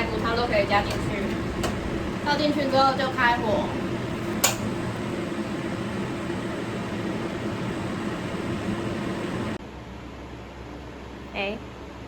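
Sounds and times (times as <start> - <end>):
gas burner rushing: 0.0 - 9.6
gas stove igniter click: 0.2 - 2.0, 4.2 - 4.9.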